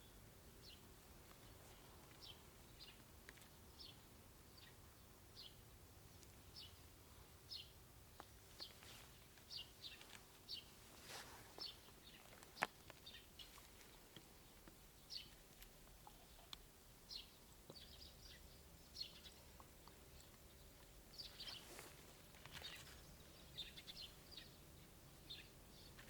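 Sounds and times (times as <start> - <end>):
faint bird chirps: 8.6 - 26.0.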